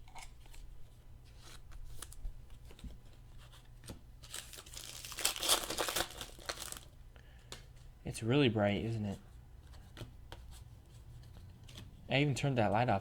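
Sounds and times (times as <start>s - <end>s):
card pack wrapper tearing: 4.2s - 6.9s.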